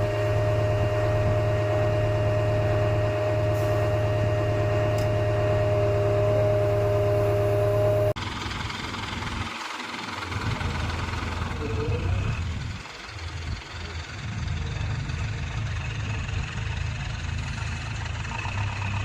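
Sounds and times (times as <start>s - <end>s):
steady tones: 0.0s - 8.2s
different engine sound: 0.0s - 19.0s
engine hum: 0.0s - 19.0s.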